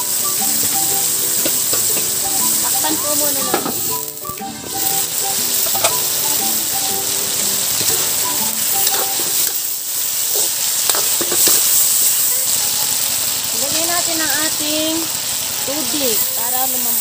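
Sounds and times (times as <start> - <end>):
light background music: 0.0 - 9.8
chicken sizzling in hot oil: 0.0 - 17.0
metal ladle clicking on pan: 1.4 - 2.2.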